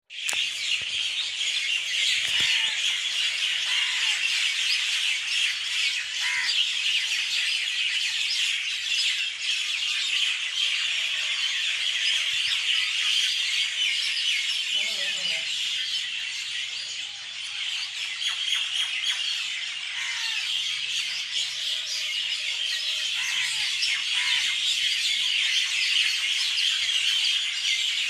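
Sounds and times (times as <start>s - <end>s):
chorus of small birds calling: 0.1s - 28.0s
lower single bird calls: 2.1s - 3.0s.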